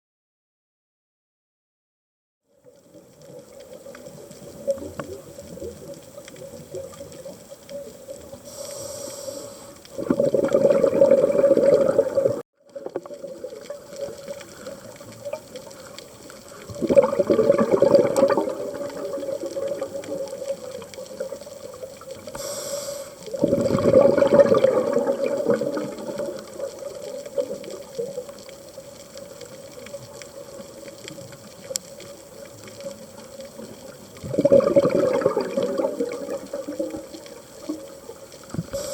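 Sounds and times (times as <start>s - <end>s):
regulator inhalation hiss: 8.4s - 9.9s, 22.3s - 23.4s, 38.7s - 38.9s
bubbling exhalation underwater: 9.9s - 15.5s, 16.6s - 21.8s, 23.3s - 28.3s, 34.1s - 38.9s.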